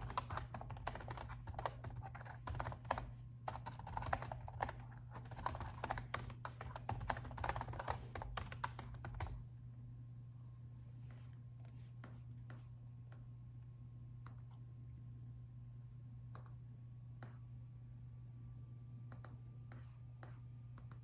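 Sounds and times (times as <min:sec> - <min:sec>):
laptop keyboard typing: 0:00.0 - 0:09.4
steady low hum: 0:00.0 - 0:21.0.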